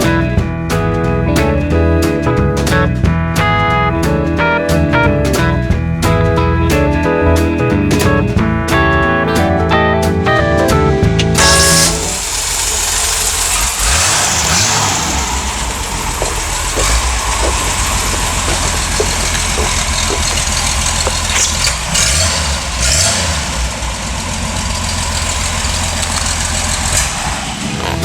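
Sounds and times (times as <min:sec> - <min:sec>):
pickup engine idling: 0:11.1 - 0:28.0.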